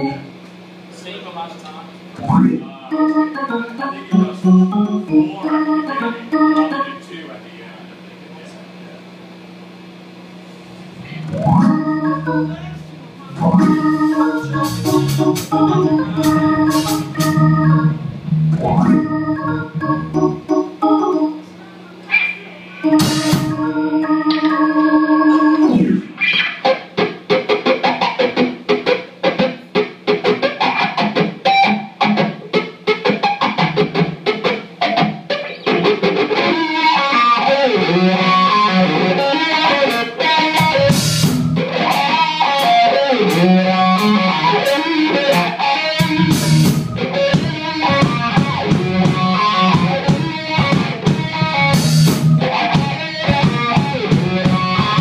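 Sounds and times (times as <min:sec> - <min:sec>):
organ chord: 0:00.0 - 0:00.4, 0:02.2 - 0:07.9, 0:10.8 - 0:26.8, 0:35.4 - 0:55.0
electric guitar riff: 0:02.1 - 0:07.1, 0:10.0 - 0:55.0
rock band playing: 0:02.2 - 0:07.0, 0:11.0 - 0:21.4, 0:22.1 - 0:55.0.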